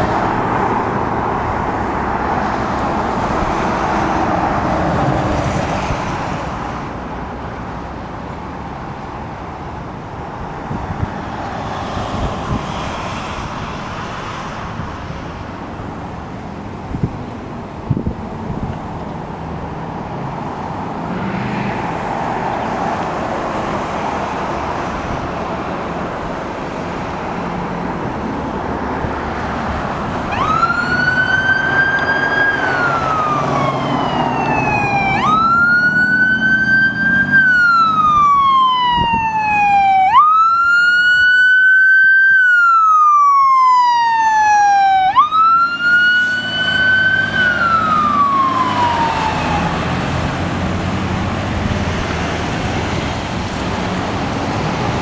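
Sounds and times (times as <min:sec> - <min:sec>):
fire engine driving past: 0:00.0 - 0:55.0
wailing siren: 0:30.2 - 0:50.6.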